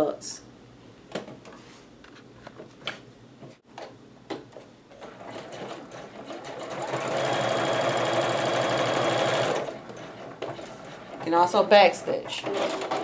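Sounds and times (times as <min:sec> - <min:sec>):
sewing machine stitching: 0:05.0 - 0:13.0.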